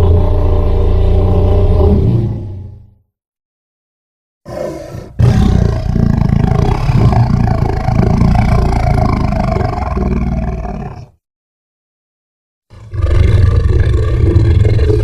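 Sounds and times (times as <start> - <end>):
deep rough creature roar: 0.0 - 2.8, 4.5 - 11.2, 12.7 - 15.0.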